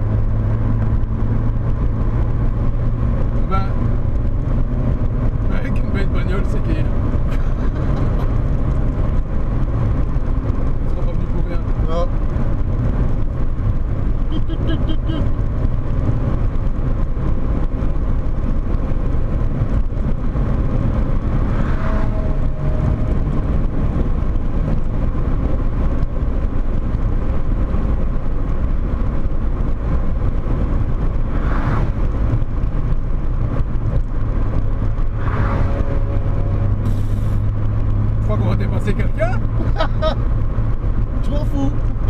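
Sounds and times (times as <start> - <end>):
car engine running at speed: 0.0 - 42.0
road and wind noise: 0.0 - 42.0.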